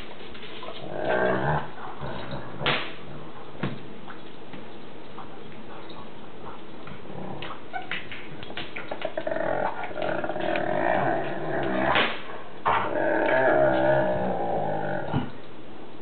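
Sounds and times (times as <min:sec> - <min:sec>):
dog whining and growling: 0:00.6 - 0:02.6, 0:08.9 - 0:12.0, 0:12.7 - 0:15.3.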